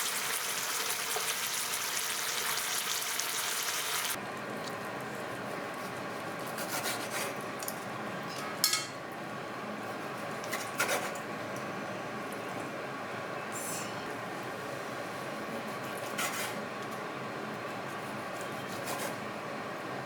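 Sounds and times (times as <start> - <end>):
food sizzling in a frying pan: 0.0 - 4.2.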